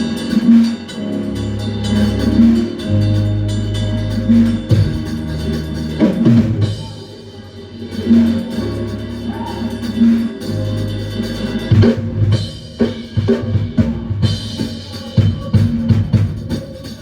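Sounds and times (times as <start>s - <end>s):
drum kit steady beat: 0.0s - 17.0s
electric bass long low notes: 1.0s - 6.8s.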